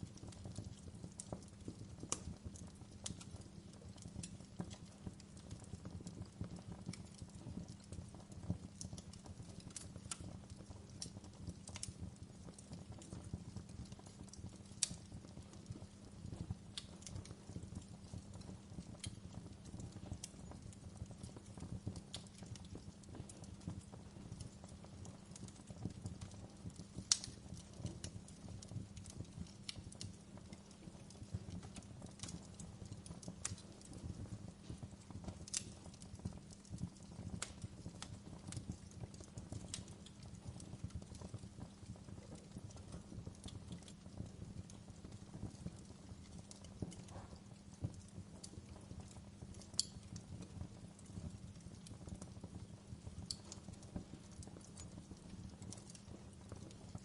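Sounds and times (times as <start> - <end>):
log fire crackling and popping: 0.0 - 57.0.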